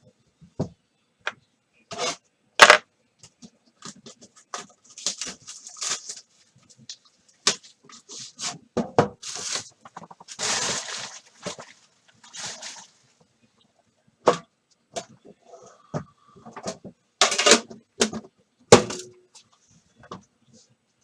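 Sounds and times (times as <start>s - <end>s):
plastic wrap and cardboard tearing: 4.8s - 6.3s, 9.2s - 12.9s.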